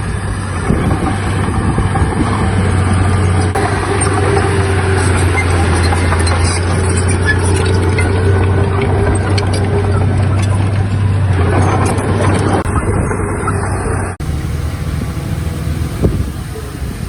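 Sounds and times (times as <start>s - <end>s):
another engine: 0.0s - 17.0s
heavy diesel engine humming: 0.0s - 17.0s.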